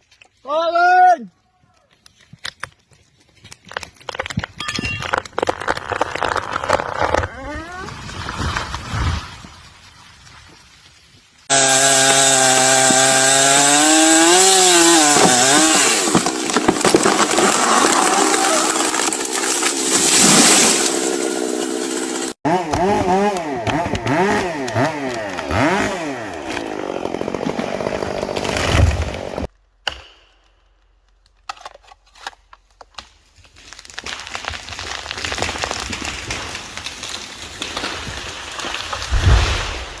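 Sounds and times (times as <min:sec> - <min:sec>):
wood cracking: 0:01.7 - 0:40.0
chainsaw cutting wood: 0:11.5 - 0:29.5
loud thud: 0:39.1 - 0:40.0.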